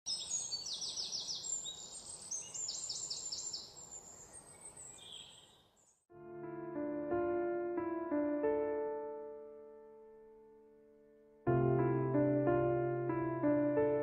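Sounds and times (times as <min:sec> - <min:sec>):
birds calling: 0:00.1 - 0:05.6
piano music: 0:06.1 - 0:14.0.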